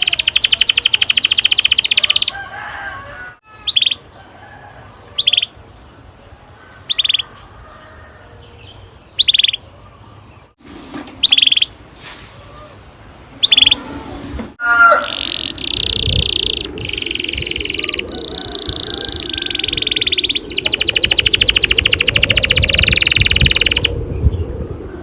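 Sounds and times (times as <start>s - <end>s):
canary chirping: 0.0s - 2.4s, 3.6s - 4.1s, 5.2s - 5.6s, 6.8s - 7.3s, 8.7s - 9.7s, 11.2s - 11.8s, 13.4s - 13.8s, 15.0s - 24.0s.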